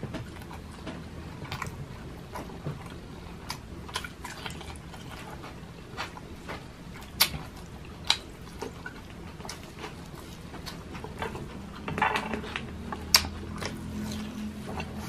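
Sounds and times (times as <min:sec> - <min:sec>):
man chewing with wet smacks: 0:00.0 - 0:15.0.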